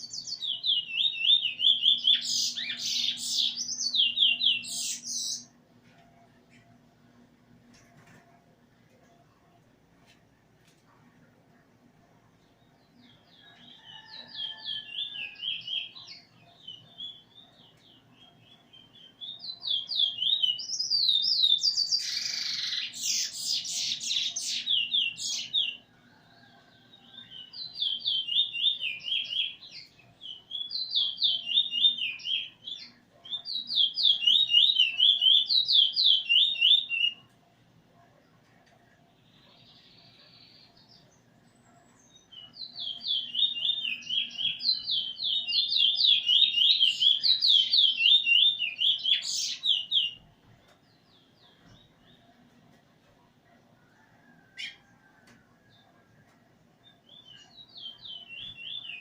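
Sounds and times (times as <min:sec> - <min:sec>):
songbird whistling song: 0:00.0 - 0:05.6, 0:12.9 - 0:25.9, 0:26.5 - 0:37.3, 0:39.6 - 0:50.3, 0:56.8 - 0:59.0.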